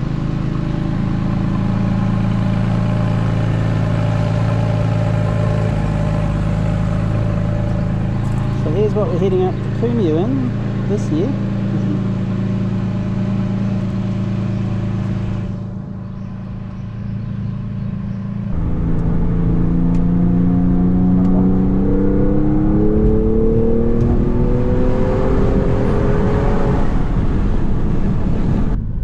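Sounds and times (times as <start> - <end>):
vehicle engine idling: 0.0 - 21.8
vehicle accelerating: 0.0 - 29.0.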